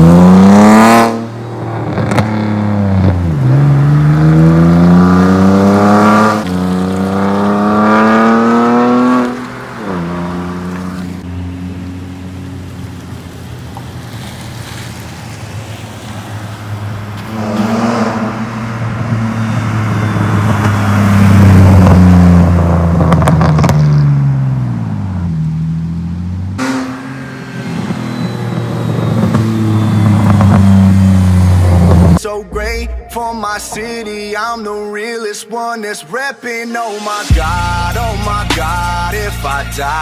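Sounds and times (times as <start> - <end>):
car engine accelerating: 0.0 - 32.2.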